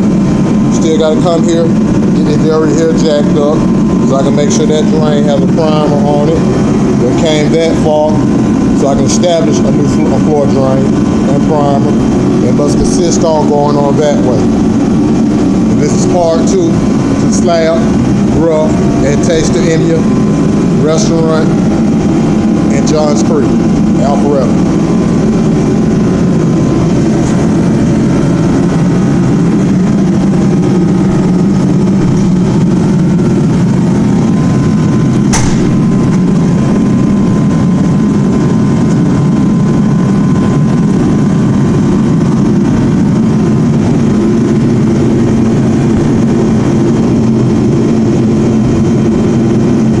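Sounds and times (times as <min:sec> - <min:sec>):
sharp knock: 0:35.3 - 0:35.8.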